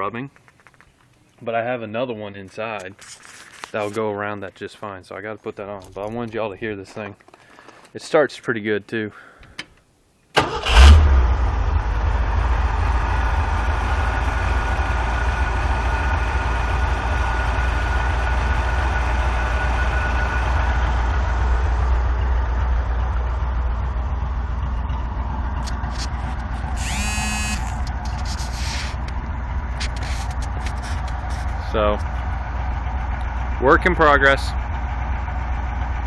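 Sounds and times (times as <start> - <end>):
engine idling: 10.4 - 36.0.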